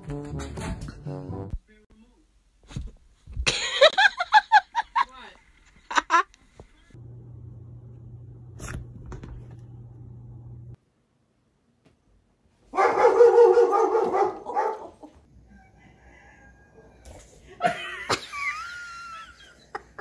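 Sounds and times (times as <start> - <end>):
steady low hum: 6.9 - 10.8.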